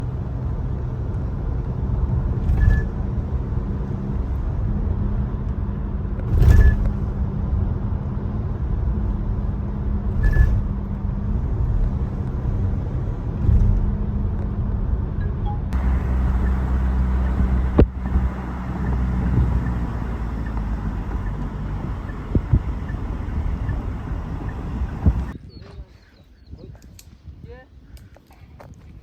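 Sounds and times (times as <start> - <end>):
road rumble: 0.0 - 25.4
car engine: 15.7 - 25.4.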